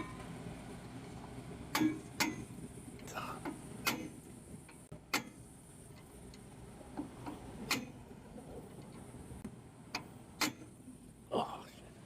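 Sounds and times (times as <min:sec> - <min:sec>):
hand tools clicking on metal parts: 0:03.4 - 0:06.4.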